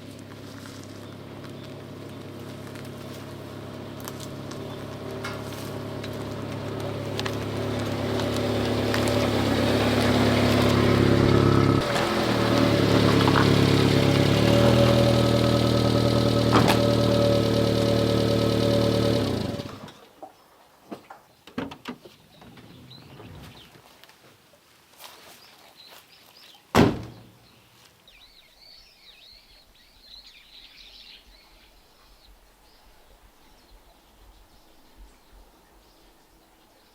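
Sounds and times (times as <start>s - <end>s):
truck engine running: 0.0s - 19.9s.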